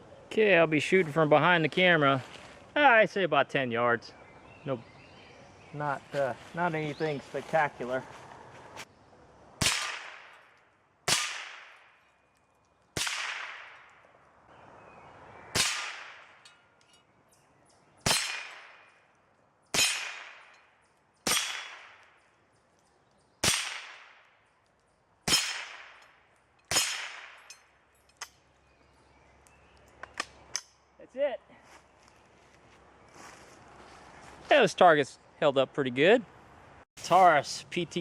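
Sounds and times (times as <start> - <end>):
rifle shots with echo: 9.6 - 10.4, 11.1 - 12.0, 13.0 - 13.9, 15.6 - 16.3, 21.2 - 22.0, 23.4 - 24.3.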